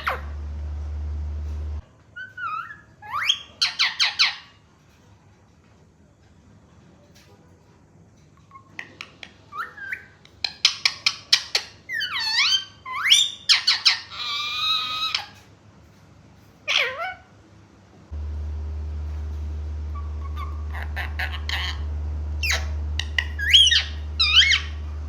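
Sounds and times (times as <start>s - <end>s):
harsh rasping parrot call: 19.9s - 24.8s
parrot squawks and whistles: 22.4s - 24.8s.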